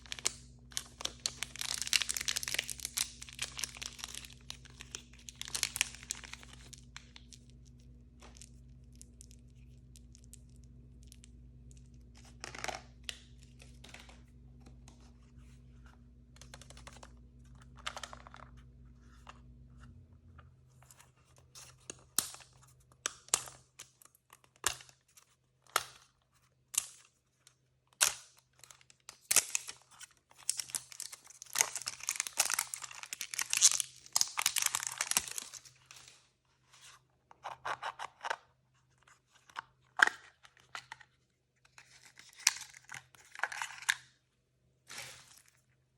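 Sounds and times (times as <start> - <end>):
plastic packaging tearing: 0.0 - 6.8, 30.4 - 35.6
plastic packaging crinkling: 0.0 - 15.6, 30.4 - 36.1.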